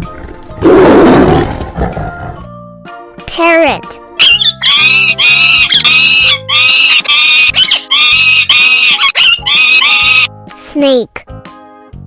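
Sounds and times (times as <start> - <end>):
light background music: 0.0 - 12.0
parrot squawking: 4.2 - 10.3.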